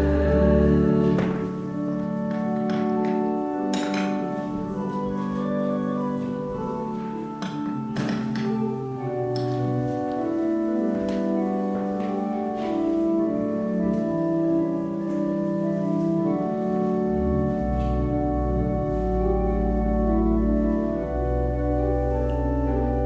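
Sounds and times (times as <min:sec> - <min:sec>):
church organ chords: 0:00.0 - 0:23.0.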